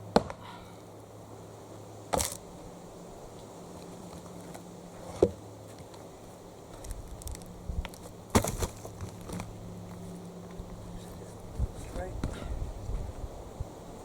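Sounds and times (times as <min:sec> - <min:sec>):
steady low hum: 0:00.0 - 0:14.0
axe striking log: 0:00.1 - 0:00.4, 0:08.3 - 0:08.8.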